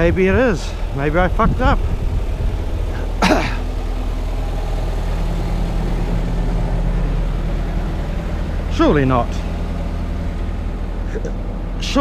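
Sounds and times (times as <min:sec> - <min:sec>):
excavator diesel engine idling: 0:00.0 - 0:12.0
person grunting: 0:03.0 - 0:03.6.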